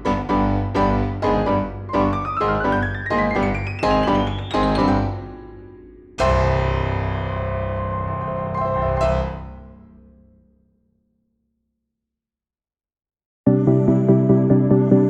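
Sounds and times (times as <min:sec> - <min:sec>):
piano music: 0:00.0 - 0:09.9.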